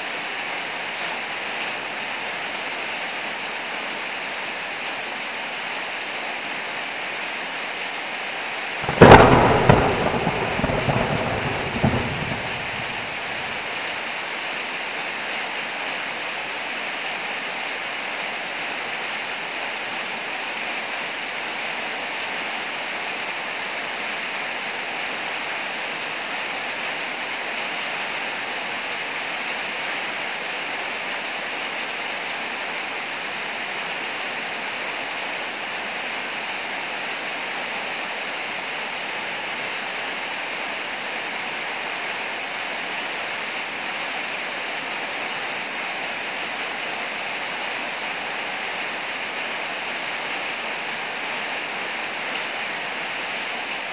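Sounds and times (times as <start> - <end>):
heavy rain: 0.0 - 53.9
thunder clap and rumble: 8.8 - 13.7.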